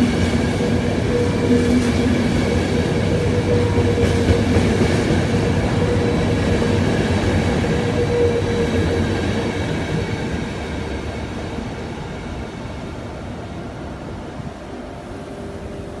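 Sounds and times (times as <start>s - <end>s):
train coaches rumbling on rails: 0.0s - 16.0s
thin steady whine: 14.2s - 16.0s.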